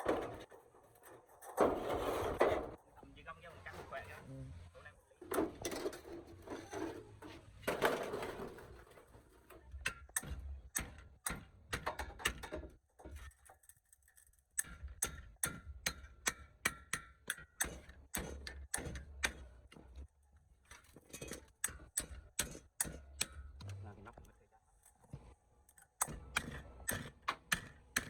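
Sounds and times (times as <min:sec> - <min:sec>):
metal scrape: 0:00.0 - 0:02.8, 0:05.4 - 0:09.6.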